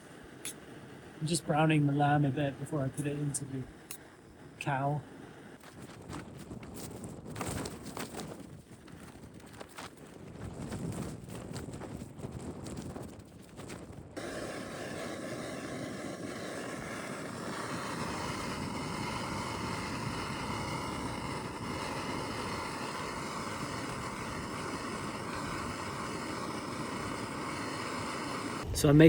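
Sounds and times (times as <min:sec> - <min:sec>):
gas stove burner roaring: 0:14.2 - 0:29.0.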